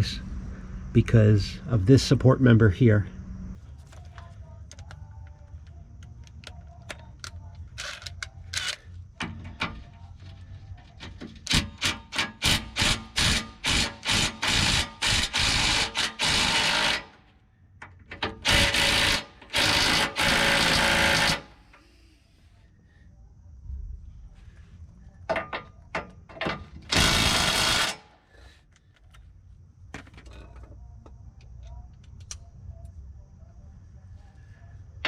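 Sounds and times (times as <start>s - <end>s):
impact wrench hammering: 11.5s - 17.2s, 18.4s - 21.5s, 26.4s - 28.0s.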